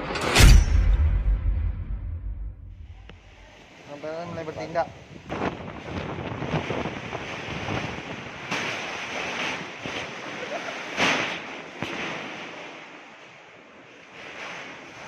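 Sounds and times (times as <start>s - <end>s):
wind buffeting microphone: 4.3s - 10.2s.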